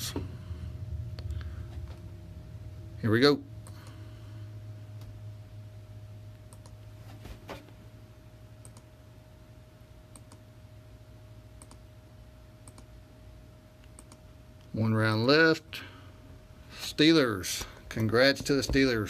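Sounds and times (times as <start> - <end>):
low electrical hum: 0.0 - 19.0
computer mouse clicking: 6.5 - 6.8, 8.6 - 8.9, 10.1 - 10.4, 11.6 - 11.8, 12.6 - 12.9, 13.8 - 14.2.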